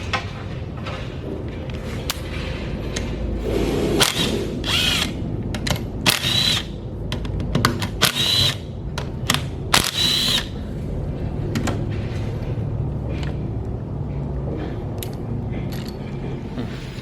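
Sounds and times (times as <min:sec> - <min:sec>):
power driver whirring: 0:04.0 - 0:05.2, 0:06.0 - 0:06.8, 0:07.8 - 0:08.8, 0:09.4 - 0:10.6
metal clicks and knocks: 0:05.5 - 0:06.0, 0:07.0 - 0:08.0.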